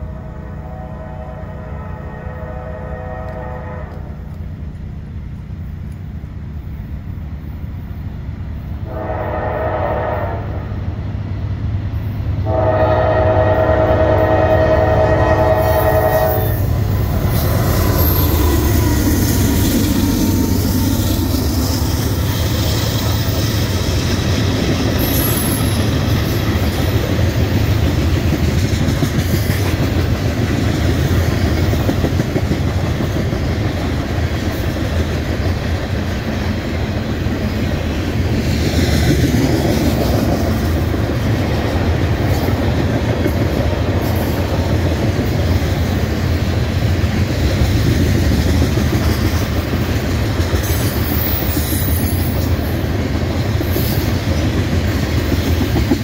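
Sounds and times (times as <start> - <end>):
diesel locomotive horn: 0.0 - 4.5, 8.8 - 11.0, 12.4 - 20.8
locomotive engine rumble: 0.0 - 56.0
wheel clickety-clack: 21.1 - 37.5, 47.0 - 56.0.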